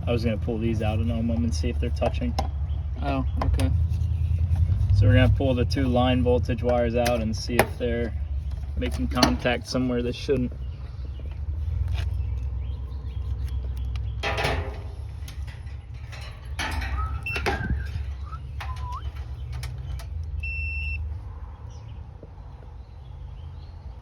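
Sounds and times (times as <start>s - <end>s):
clicks and knocks of tools: 13.7s - 20.4s.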